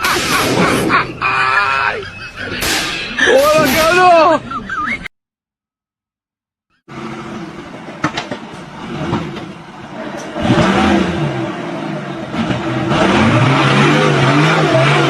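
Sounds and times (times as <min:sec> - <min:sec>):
engine running and revving: 0:06.8 - 0:15.0.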